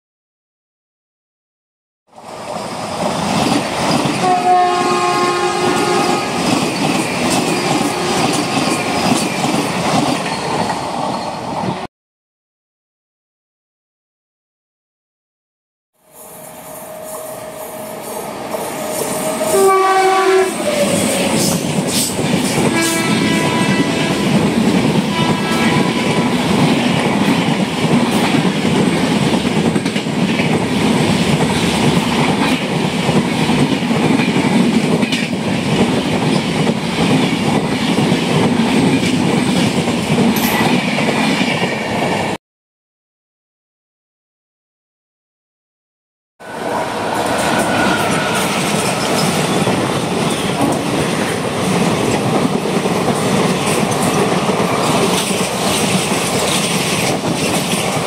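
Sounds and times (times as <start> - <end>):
train rushing past: 2.2 - 11.9, 16.0 - 42.4, 46.4 - 58.0
train horn: 4.2 - 6.5, 7.6 - 8.5, 18.9 - 21.4, 22.7 - 24.4, 25.0 - 26.5.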